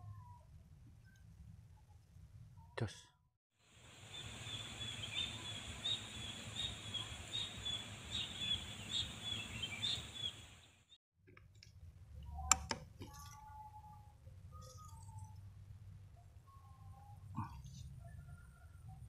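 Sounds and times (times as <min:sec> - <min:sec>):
open field hiss: 0:03.6 - 0:11.0
small birds chirping: 0:03.8 - 0:11.0.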